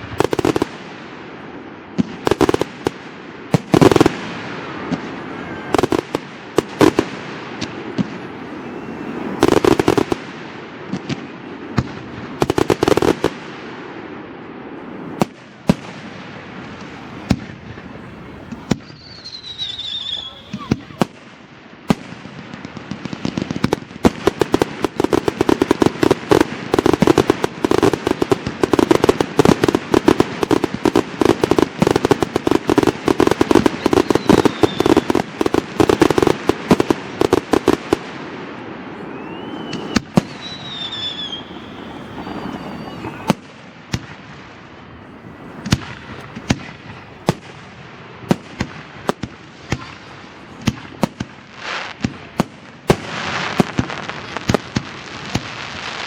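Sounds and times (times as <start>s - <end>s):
fireworks bangs and crackling: 0.0s - 56.0s
firework whistles: 3.5s - 13.4s, 14.8s - 22.0s, 22.9s - 37.9s, 38.9s - 47.4s.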